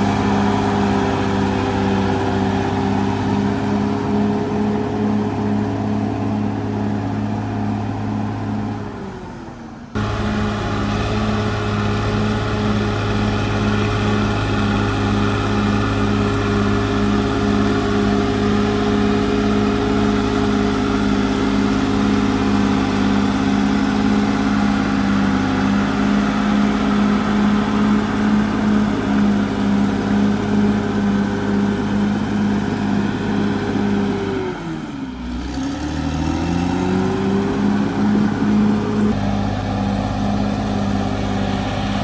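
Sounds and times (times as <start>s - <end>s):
bulldozer diesel engine running: 0.0s - 42.0s.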